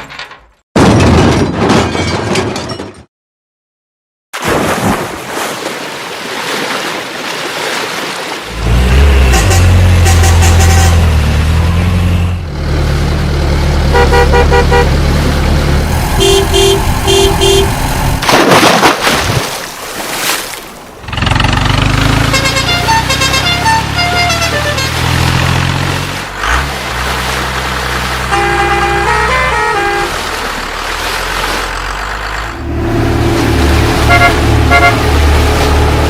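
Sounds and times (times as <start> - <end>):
vehicle engine rumbling: 8.5 - 18.3, 20.8 - 36.0
short horn toots: 9.0 - 11.2, 13.9 - 15.0, 16.2 - 17.8, 22.2 - 25.2, 28.3 - 30.2, 34.0 - 35.1.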